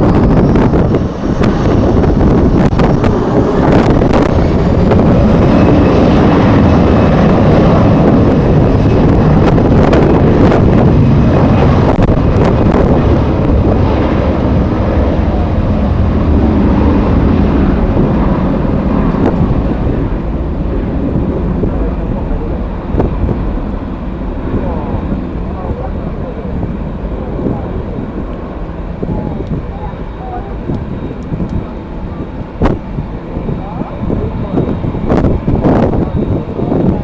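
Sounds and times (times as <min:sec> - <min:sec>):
engine whine: 0:00.0 - 0:37.0
jet engines rumbling: 0:00.0 - 0:37.0
wind buffeting microphone: 0:00.0 - 0:37.0.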